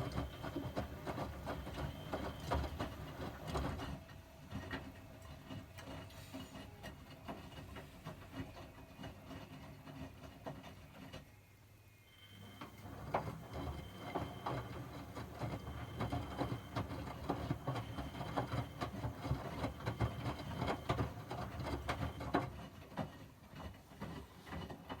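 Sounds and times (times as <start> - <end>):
washing machine running: 0.0 - 4.0, 12.1 - 22.8.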